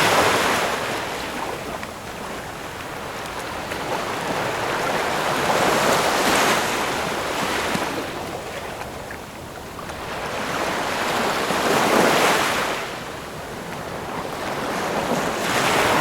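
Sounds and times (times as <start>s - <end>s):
ocean waves breaking: 0.0s - 16.0s.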